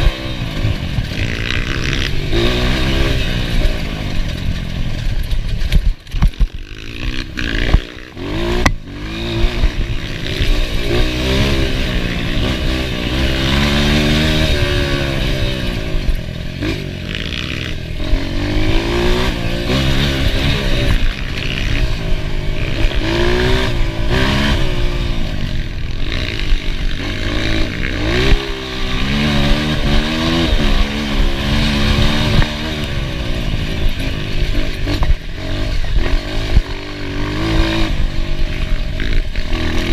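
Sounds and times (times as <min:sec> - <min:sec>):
sharp knocks and clatter: 0:00.0 - 0:12.6
motorcycle engine revving: 0:00.0 - 0:39.9.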